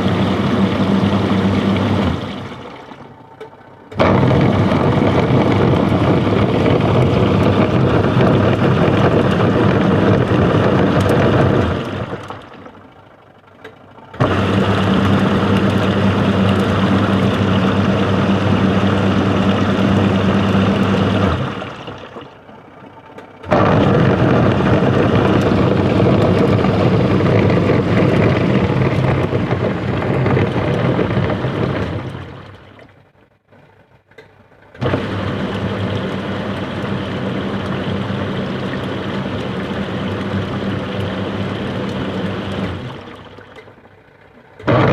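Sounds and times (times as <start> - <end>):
washing machine motor running roughly: 0.0 - 32.8, 34.8 - 43.7, 44.6 - 44.9.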